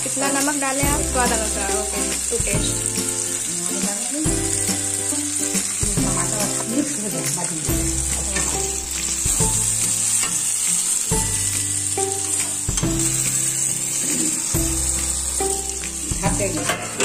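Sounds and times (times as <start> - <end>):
background music: 0.0 - 17.0
vegetables sizzling in hot oil: 0.0 - 17.0
metal spatula scraping pan: 12.0 - 15.2, 16.4 - 17.0.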